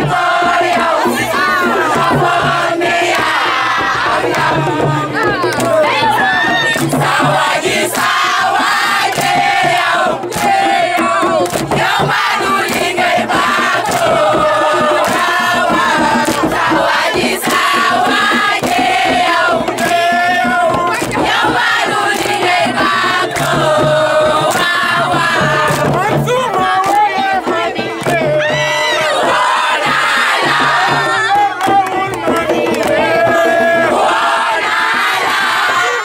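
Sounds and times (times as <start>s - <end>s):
crowd singing a chant: 0.0s - 36.0s.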